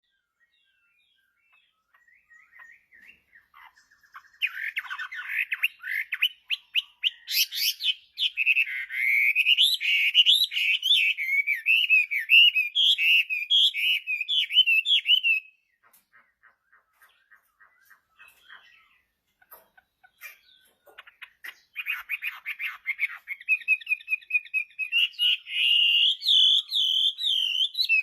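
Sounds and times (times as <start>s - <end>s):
bird singing: 0.0s - 28.0s
faint bird chirps: 0.0s - 28.0s.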